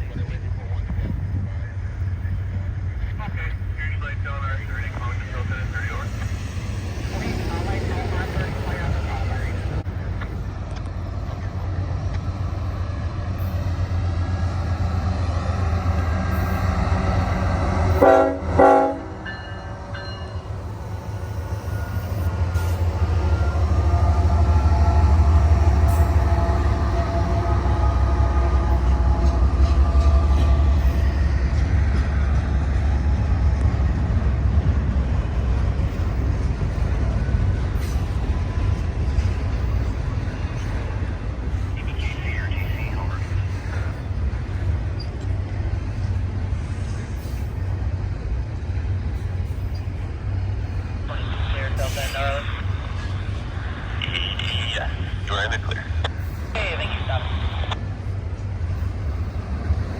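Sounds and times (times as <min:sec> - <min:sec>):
diesel locomotive rumble: 0:00.0 - 0:59.9
train horn blasts: 0:17.6 - 0:20.4, 0:22.4 - 0:31.7.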